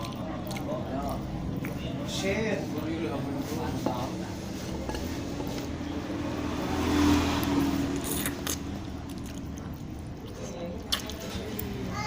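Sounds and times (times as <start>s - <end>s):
biting and chewing food: 0.0s - 2.2s, 6.9s - 11.9s.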